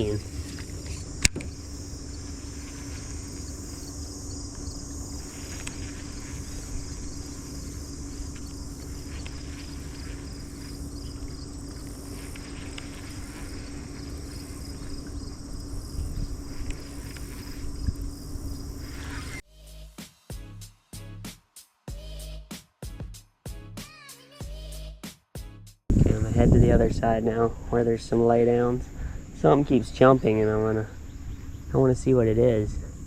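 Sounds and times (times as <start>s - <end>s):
small boat motor humming: 0.0s - 19.4s
insects chirping: 0.0s - 20.0s, 26.0s - 33.0s.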